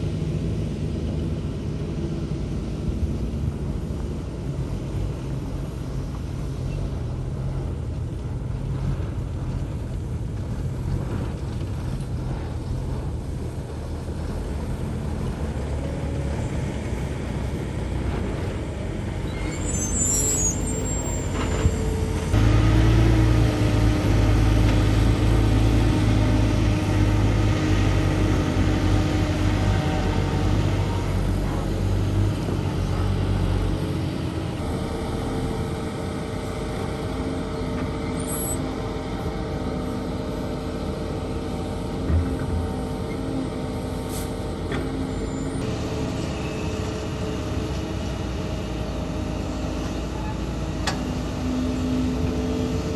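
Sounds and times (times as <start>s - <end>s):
heavy diesel machinery engine: 0.0s - 52.9s
brief high squeal: 19.2s - 22.1s, 38.1s - 38.6s.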